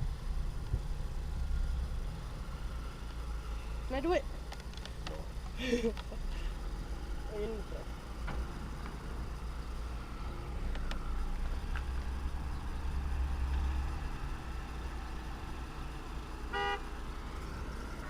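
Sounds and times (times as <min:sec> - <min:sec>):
low rumble of car running: 0:00.0 - 0:18.0
short car horn beep: 0:16.5 - 0:16.8.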